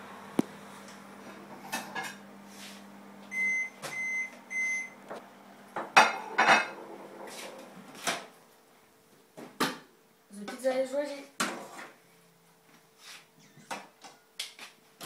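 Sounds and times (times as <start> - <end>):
microwave oven humming: 0.0 - 10.2.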